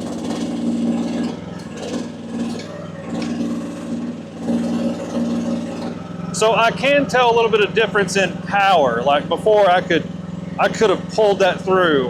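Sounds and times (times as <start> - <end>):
metal clanks: 0.0 - 6.8
excavator engine under load: 0.0 - 12.0.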